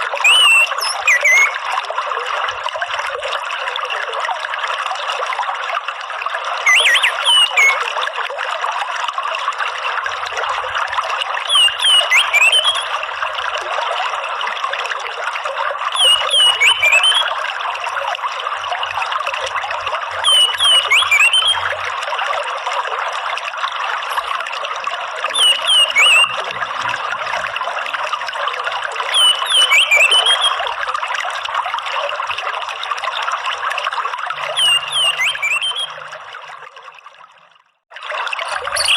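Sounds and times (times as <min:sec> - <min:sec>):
trickling running water: 0:00.0 - 0:38.9
bird chirping: 0:00.2 - 0:01.6, 0:06.7 - 0:07.8, 0:11.5 - 0:12.9, 0:16.0 - 0:17.2, 0:20.2 - 0:21.6, 0:25.4 - 0:26.4, 0:29.1 - 0:30.6, 0:34.5 - 0:36.0, 0:38.5 - 0:38.9.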